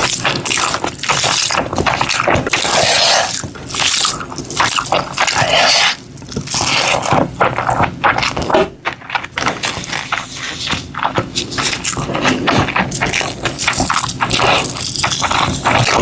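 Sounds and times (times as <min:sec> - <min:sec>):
crunching and chewing: 0:00.0 - 0:16.0.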